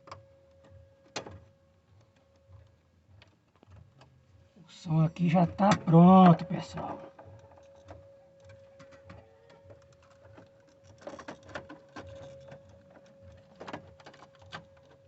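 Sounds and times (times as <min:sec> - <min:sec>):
clicks and taps on car stereo: 0:00.0 - 0:04.2.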